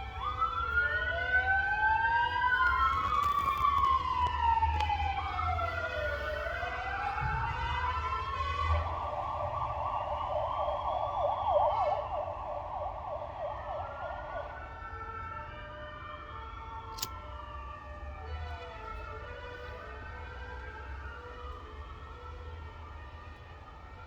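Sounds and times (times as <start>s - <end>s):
police sirens yelping and wailing: 0.0s - 24.0s.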